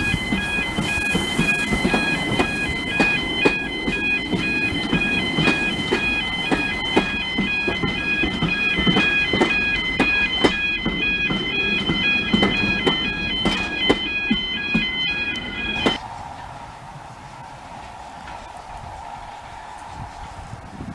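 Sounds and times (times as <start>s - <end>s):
sharp knocks: 0.0s - 16.0s
two-tone electronic alarm: 0.0s - 16.0s.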